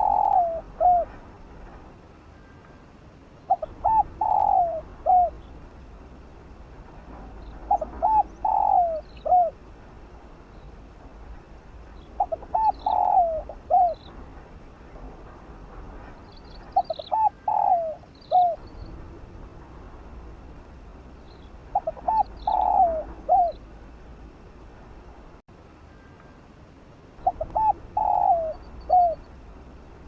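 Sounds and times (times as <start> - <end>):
dove cooing: 0.0 - 1.2, 3.5 - 5.5, 7.5 - 9.6, 12.1 - 14.2, 16.6 - 18.6, 21.7 - 23.8, 27.2 - 29.4
small birds chirping: 11.9 - 14.2, 16.2 - 19.0, 21.2 - 23.7.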